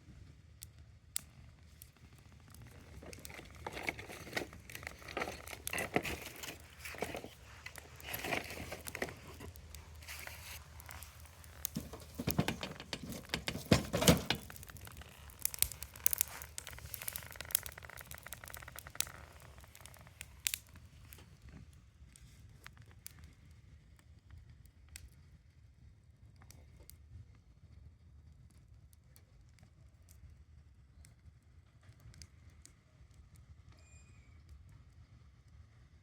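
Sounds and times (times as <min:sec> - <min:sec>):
campfire crackling and popping: 0:00.6 - 0:27.5.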